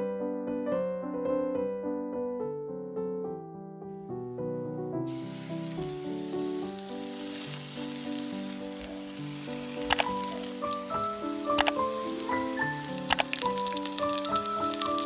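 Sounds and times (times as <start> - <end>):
piano music: 0.0 - 15.0
chicken sizzling in frying oil: 5.1 - 15.0
oil crackles: 5.1 - 15.0.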